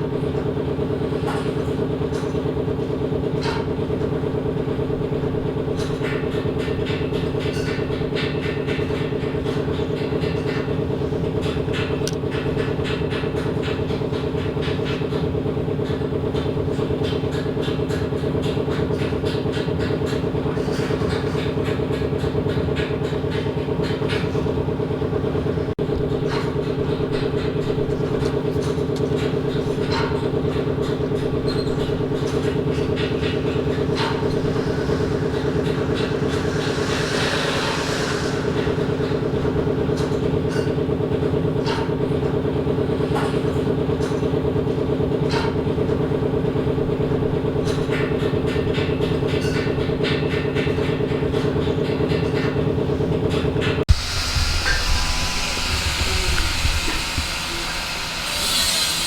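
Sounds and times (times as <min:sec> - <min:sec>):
metalworking machinery humming: 0:00.0 - 0:59.0.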